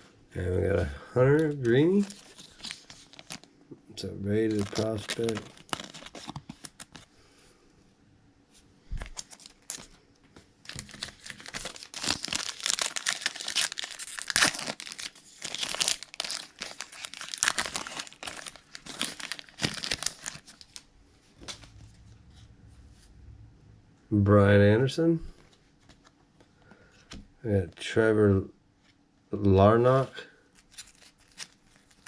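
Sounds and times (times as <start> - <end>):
plastic packaging crackling: 1.3 - 3.6, 4.3 - 7.1, 9.0 - 10.0, 10.6 - 21.9, 30.5 - 32.0.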